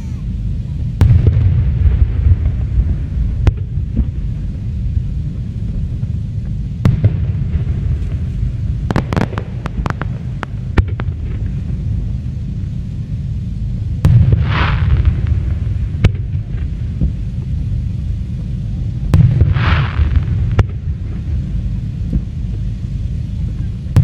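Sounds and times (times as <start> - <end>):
low steady rumble: 0.0 - 24.0
rapid firework crackling: 0.0 - 24.0
firework shells bursting: 5.7 - 12.0.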